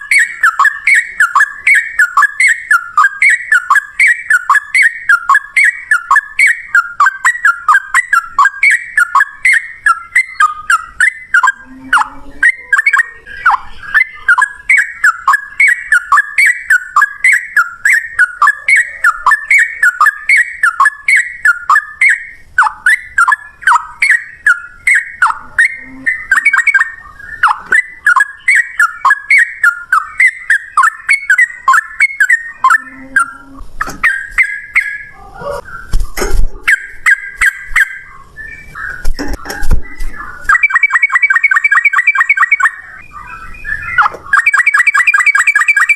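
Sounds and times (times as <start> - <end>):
bird singing whistled notes: 0.0 - 45.9.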